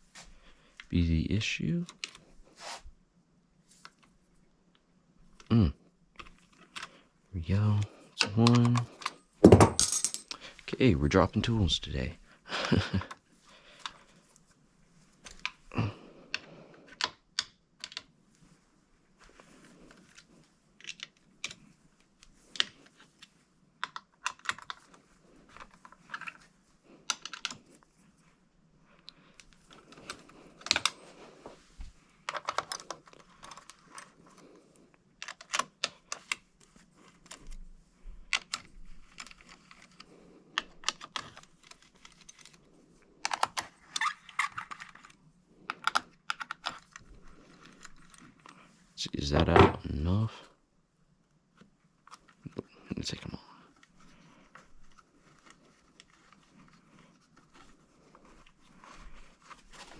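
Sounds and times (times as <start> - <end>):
hand tools clinking on metal parts: 9.4 - 10.4.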